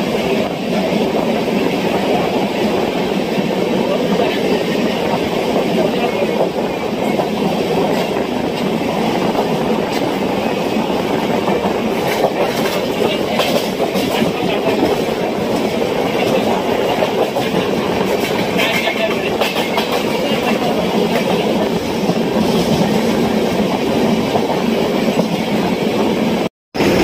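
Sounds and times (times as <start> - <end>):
train wheels rumbling on rails: 0.0 - 27.0
sharp rail clacks: 11.4 - 25.5.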